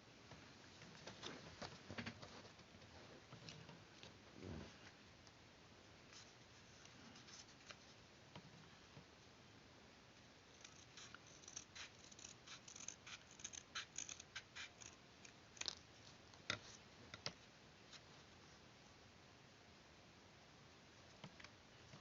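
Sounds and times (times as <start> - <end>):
scissors cutting paper: 10.6 - 15.8.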